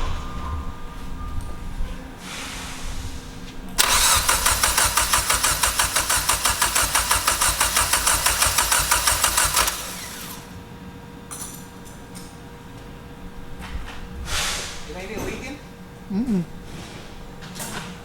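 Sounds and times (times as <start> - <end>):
engine cranking by starter motor: 3.8 - 10.7.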